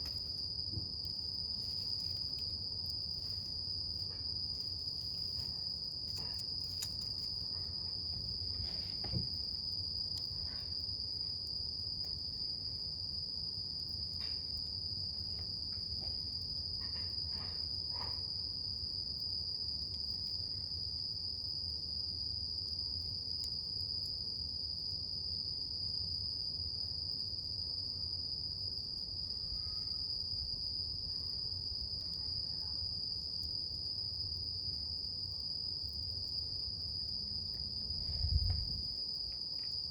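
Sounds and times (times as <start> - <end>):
campfire crackling: 0.0 - 7.5
insects chirring: 0.0 - 20.9, 28.7 - 39.9.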